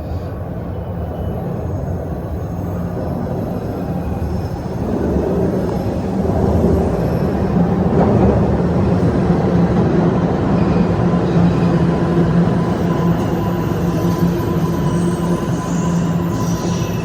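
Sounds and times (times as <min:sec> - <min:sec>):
subway train rumbling: 0:00.0 - 0:17.0
thin high tone: 0:12.6 - 0:17.0.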